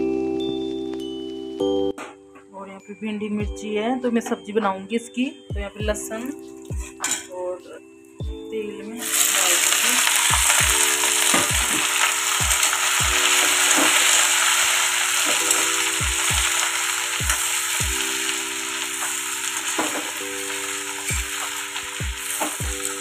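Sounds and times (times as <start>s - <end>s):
vegetables sizzling in hot oil: 9.0s - 23.0s.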